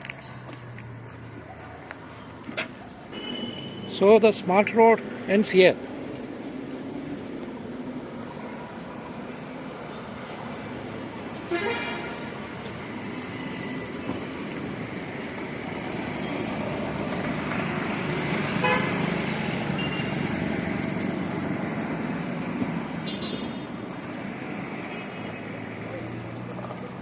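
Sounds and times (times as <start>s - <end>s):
road traffic passing: 0.0s - 27.0s
vehicle horn toots: 11.5s - 12.2s, 18.6s - 19.0s.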